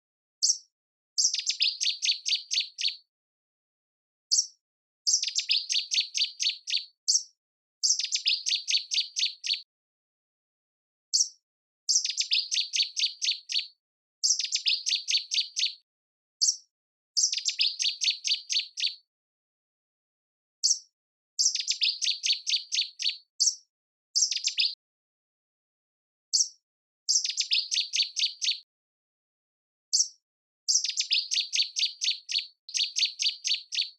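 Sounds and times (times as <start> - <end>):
songbird singing: 0.4 - 3.1, 4.3 - 9.7, 11.1 - 15.8, 16.4 - 16.6, 17.2 - 19.0, 20.6 - 20.8, 21.4 - 23.6, 24.2 - 24.8, 26.3 - 28.7, 29.9 - 33.9.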